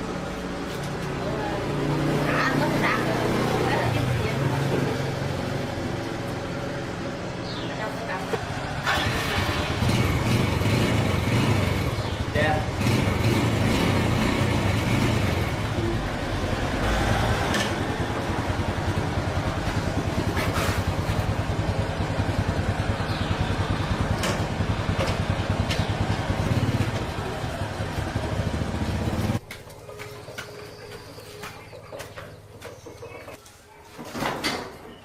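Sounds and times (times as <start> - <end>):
small motorcycle engine idling: 8.5 - 16.6, 17.6 - 31.7.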